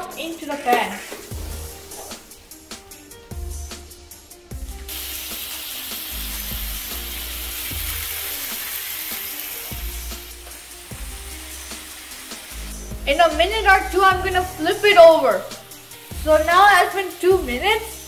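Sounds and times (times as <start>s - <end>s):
kebabs sizzling in hot oil: 0.0s - 18.0s.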